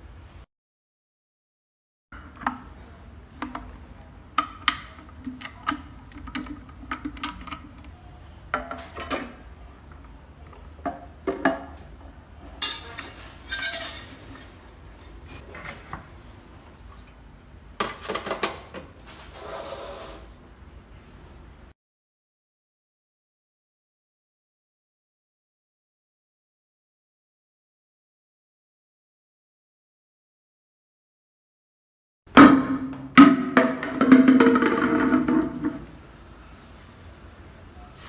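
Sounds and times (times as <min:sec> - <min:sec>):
clinks of hard parts handled: 0:12.6 - 0:14.6.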